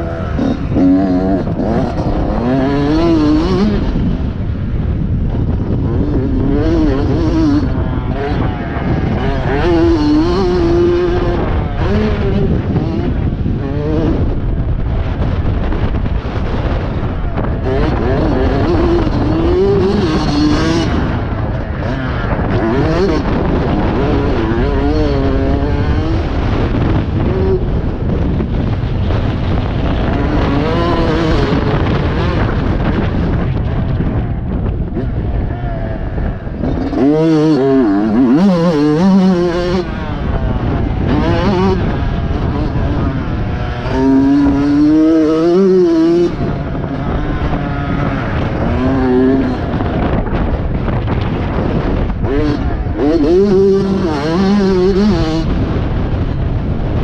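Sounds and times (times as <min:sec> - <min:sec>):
motocross engine revving: 0:00.0 - 0:57.0
wind rumble on microphone: 0:00.0 - 0:57.0.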